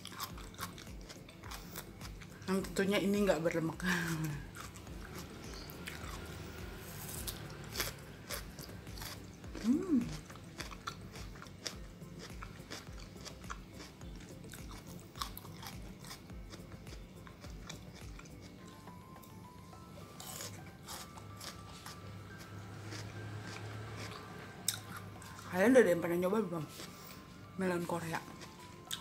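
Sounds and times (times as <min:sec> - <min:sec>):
crunching and chewing melon: 0:00.0 - 0:19.4, 0:20.1 - 0:26.1, 0:27.8 - 0:29.0
person humming: 0:09.5 - 0:10.4.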